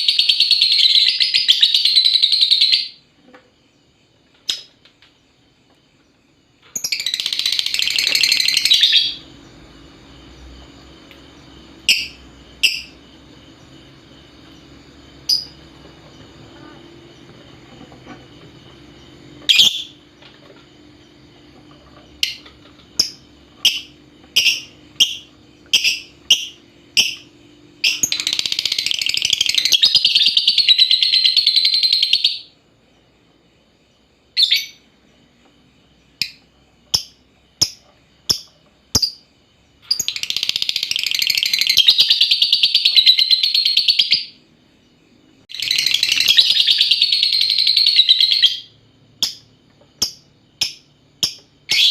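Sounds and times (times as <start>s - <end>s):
lovebird sharp chirps: 11.8s - 13.0s, 19.5s - 20.0s, 23.0s - 32.5s.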